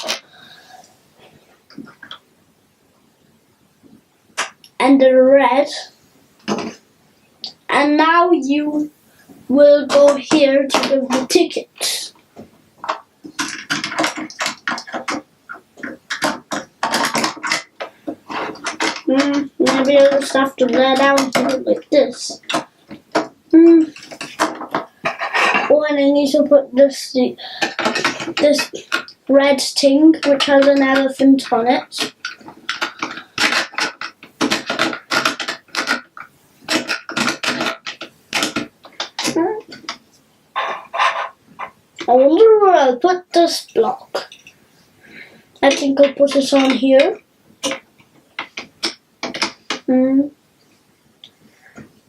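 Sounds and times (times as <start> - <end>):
plastic toy bricks clicking: 9.9 - 11.4, 12.8 - 23.3, 23.9 - 25.2, 27.6 - 40.0, 45.6 - 49.9.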